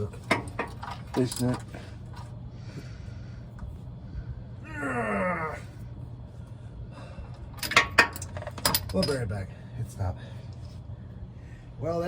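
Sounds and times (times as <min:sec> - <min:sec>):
steady low hum: 0:00.0 - 0:12.0
man groaning: 0:04.6 - 0:05.8.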